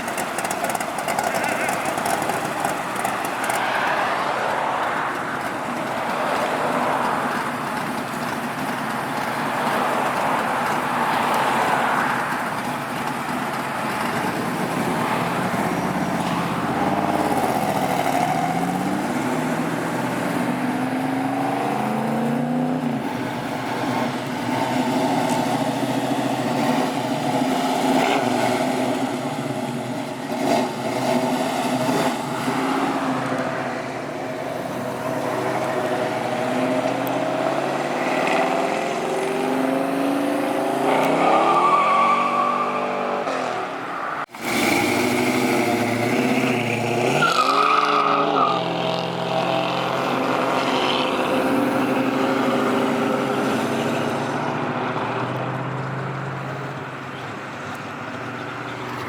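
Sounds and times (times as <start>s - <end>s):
car engines revving past: 0.0s - 59.0s
traffic noise: 0.0s - 59.0s.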